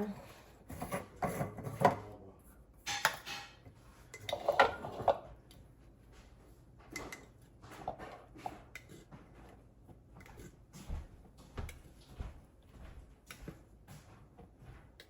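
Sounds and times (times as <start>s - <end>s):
dishes and cutlery clattering: 2.8s - 5.3s, 6.9s - 8.9s.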